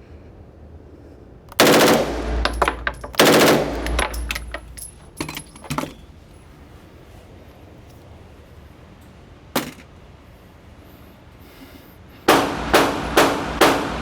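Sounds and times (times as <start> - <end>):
automatic gunfire bursts: 1.5 - 4.6, 12.3 - 14.0
single gunshots: 1.6 - 4.2, 12.3 - 14.0.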